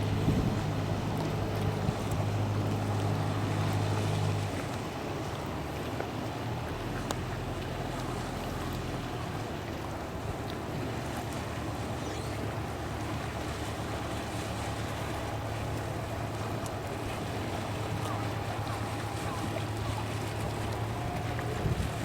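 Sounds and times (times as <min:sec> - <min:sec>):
wind noise: 0:00.0 - 0:00.8
ferry engine humming: 0:00.0 - 0:22.0
water wash: 0:00.0 - 0:22.0.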